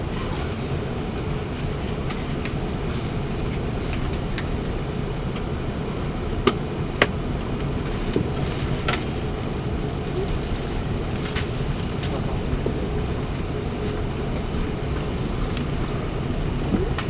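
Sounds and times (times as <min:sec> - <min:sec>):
aircraft cabin rumble: 0:00.0 - 0:17.0.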